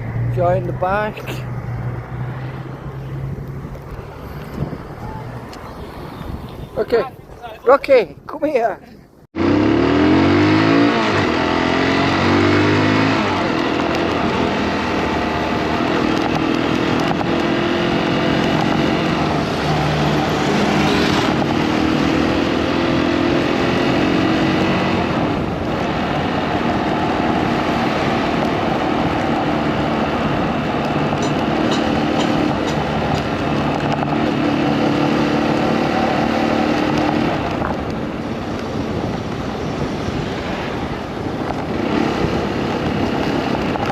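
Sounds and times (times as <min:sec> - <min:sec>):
motorcycle engine pulling away: 0:09.4 - 0:40.2.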